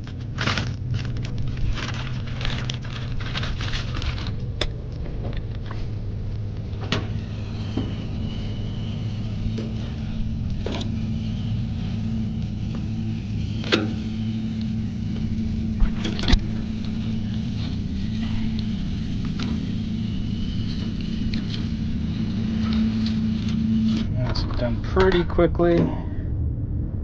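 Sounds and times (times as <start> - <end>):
knocks and clatters of gear: 0.0 - 5.9
low motor hum: 0.0 - 27.0.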